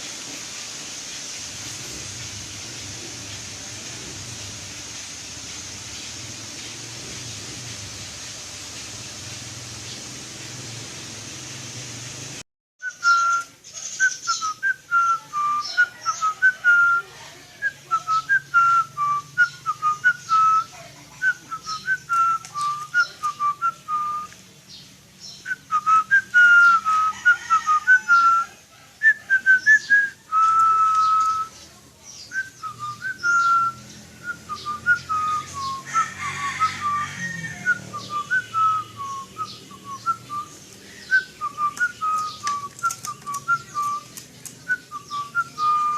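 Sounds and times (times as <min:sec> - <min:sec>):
short whistled notes: 0:12.8 - 0:17.0
faint high chirps: 0:12.8 - 0:45.9.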